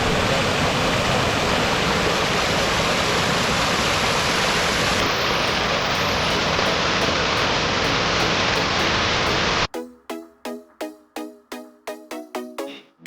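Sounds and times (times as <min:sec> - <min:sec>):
stream water rushing: 0:00.0 - 0:09.7.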